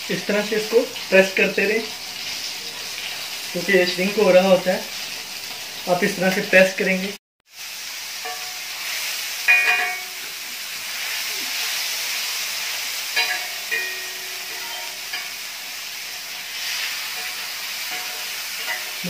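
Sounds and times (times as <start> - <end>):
meat sizzling in oil: 0.0 - 19.0
spatulas scraping a griddle: 16.0 - 19.0.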